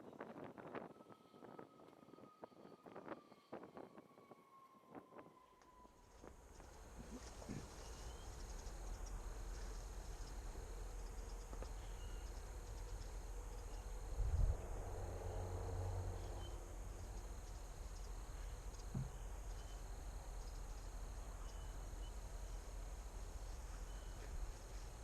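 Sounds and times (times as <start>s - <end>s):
faint chirps: 5.5s - 14.2s, 15.1s - 25.0s
high insect drone: 5.9s - 25.0s
low thump: 18.9s - 19.2s.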